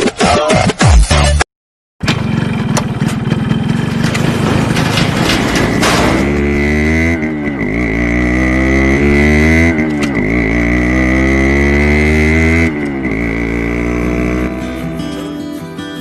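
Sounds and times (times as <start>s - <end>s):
two-stroke motorcycle engine revving: 2.0s - 15.1s.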